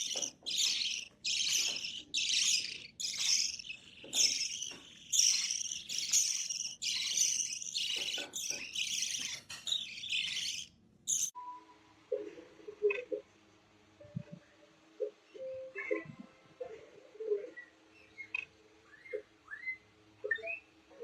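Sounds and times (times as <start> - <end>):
parrot calling harshly: 0.0 - 11.3.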